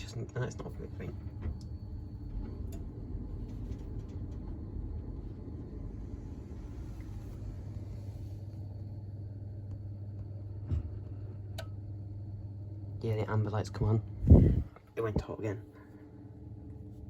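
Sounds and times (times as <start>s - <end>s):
gas boiler humming: 0.0s - 17.0s
boiler click: 11.5s - 11.9s.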